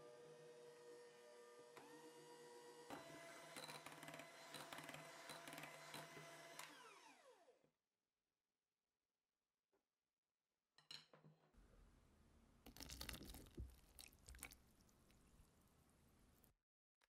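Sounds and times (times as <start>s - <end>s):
electric hand mixer whining: 0.0s - 7.6s.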